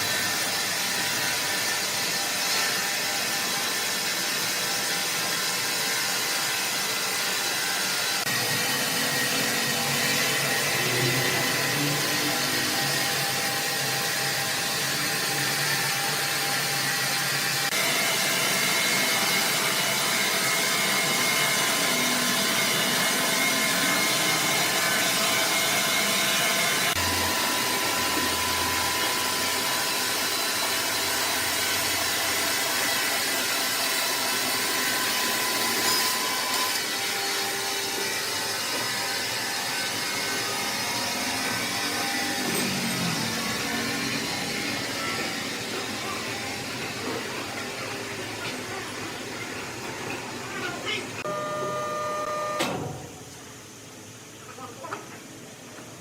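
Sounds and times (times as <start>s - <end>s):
sawmill machinery whirring: 0.0s - 54.0s
faint high whines: 50.4s - 53.3s.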